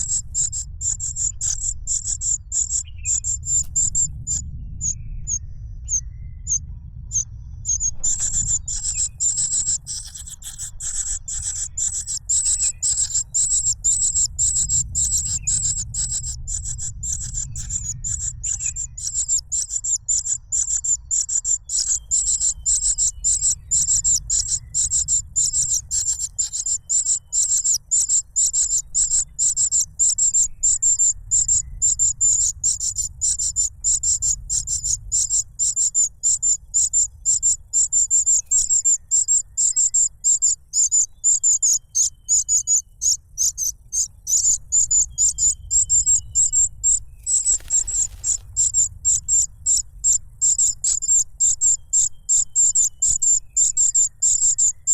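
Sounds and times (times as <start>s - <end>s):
chick begging calls: 7.7s - 51.2s
brief rustle: 47.4s - 48.6s.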